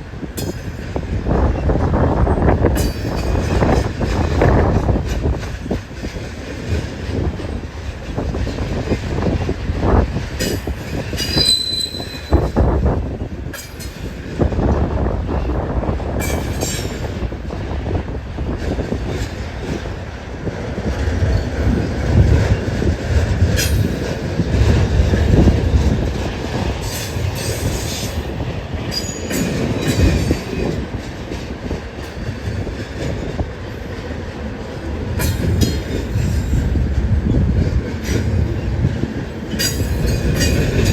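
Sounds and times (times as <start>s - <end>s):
train cars rumbling on rails: 0.0s - 40.9s
wind on microphone: 0.0s - 40.9s
high wheel squeal: 11.2s - 12.5s.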